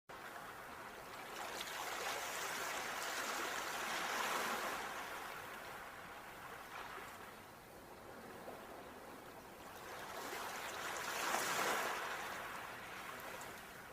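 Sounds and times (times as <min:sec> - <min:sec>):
sea waves washing onto shore: 0:09.7 - 0:13.9.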